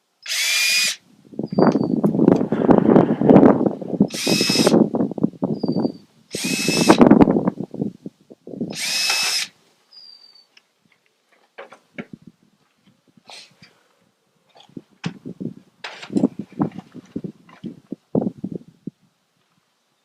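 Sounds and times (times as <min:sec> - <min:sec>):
power drill bursts: 0:00.2 - 0:01.0, 0:04.1 - 0:04.8, 0:06.3 - 0:07.0, 0:08.7 - 0:09.5.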